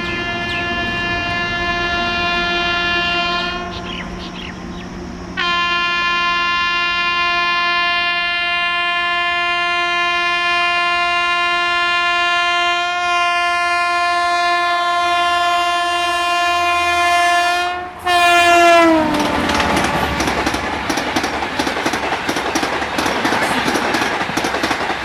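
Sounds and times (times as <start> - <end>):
train horn blast: 0.0 - 4.6, 5.4 - 20.4
passing train clatter: 0.0 - 25.0.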